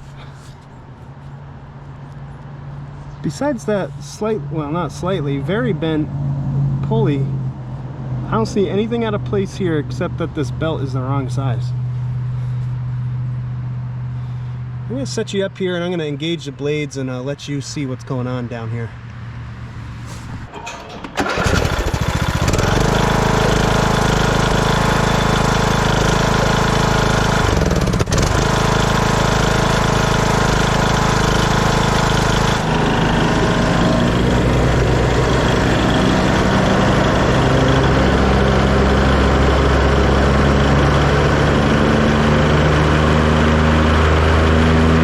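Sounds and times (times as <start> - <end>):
mower blades spinning: 20.0 - 42.8
lawn tractor engine running: 20.4 - 45.0.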